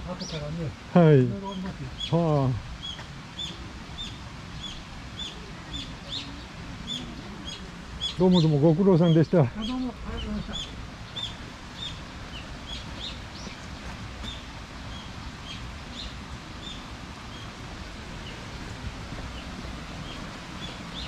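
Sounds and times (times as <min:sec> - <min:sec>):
small birds chirping: 0:00.0 - 0:21.0
steady low rumble: 0:09.5 - 0:21.0.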